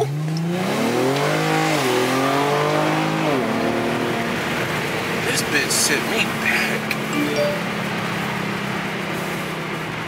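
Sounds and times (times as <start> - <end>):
car accelerating hard: 0.1 - 7.1.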